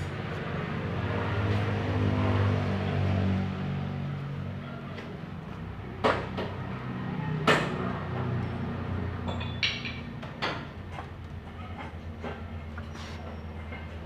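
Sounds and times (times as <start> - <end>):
metal tools clanking: 8.4 - 14.0.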